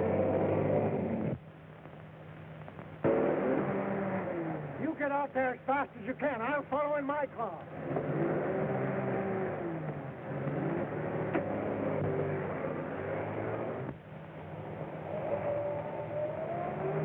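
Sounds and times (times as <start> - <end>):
motor vehicle engine running: 7.7 - 17.0.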